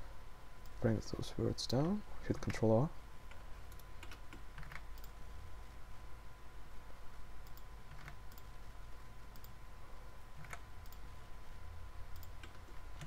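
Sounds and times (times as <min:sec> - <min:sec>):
steady low hum: 0:00.0 - 0:13.0
computer mouse and keyboard clicks: 0:03.3 - 0:05.2, 0:07.4 - 0:08.5, 0:10.4 - 0:11.1.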